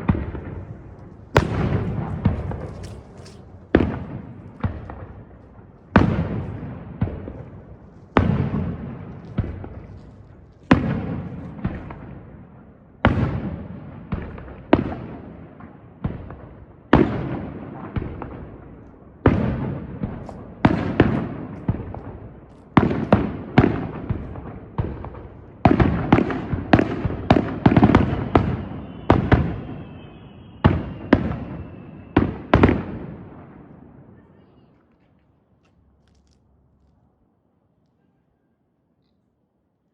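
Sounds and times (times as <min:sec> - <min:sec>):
firework shells bursting: 0:00.0 - 0:05.6
faint whistle: 0:28.2 - 0:32.5, 0:37.9 - 0:39.3.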